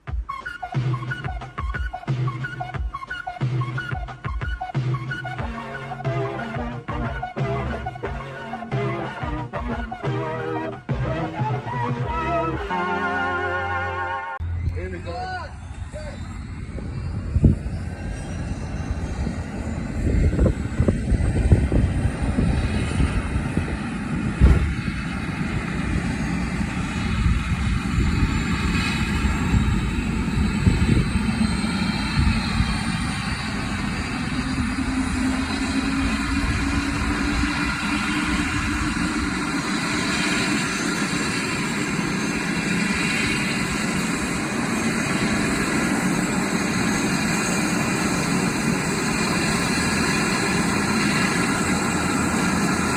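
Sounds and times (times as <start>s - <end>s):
helicopter turbine whine: 0.0s - 52.9s
low hum rising in pitch: 4.9s - 12.7s, 14.3s - 52.9s
heavy low rumble with thumps: 14.4s - 40.1s.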